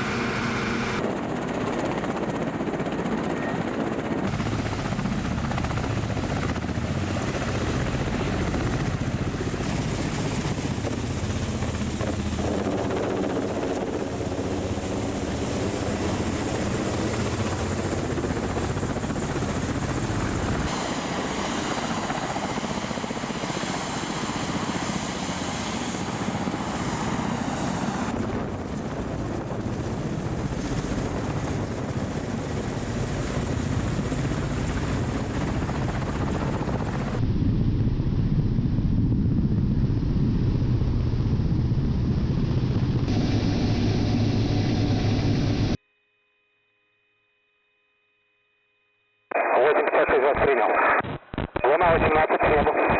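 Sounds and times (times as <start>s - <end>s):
helicopter rotor beat: 0.0s - 37.2s, 40.9s - 45.8s
helicopter engine noise: 0.0s - 45.8s, 51.6s - 52.9s.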